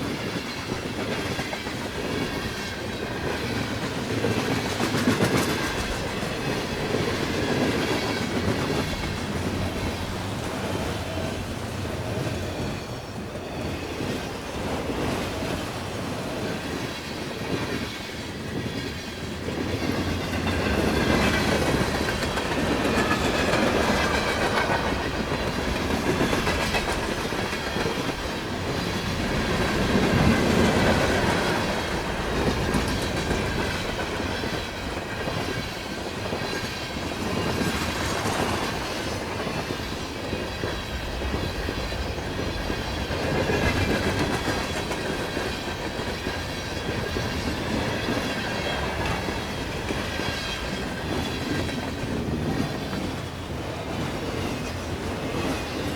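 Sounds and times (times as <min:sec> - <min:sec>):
freight train rumble: 0:00.0 - 0:55.9
train wheels clicking over rail joints: 0:00.0 - 0:55.9.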